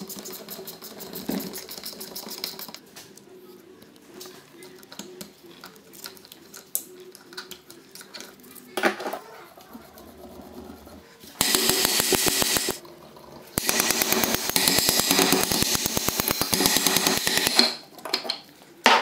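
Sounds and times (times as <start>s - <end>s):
power wrench hammering: 11.4s - 12.8s, 13.6s - 17.8s.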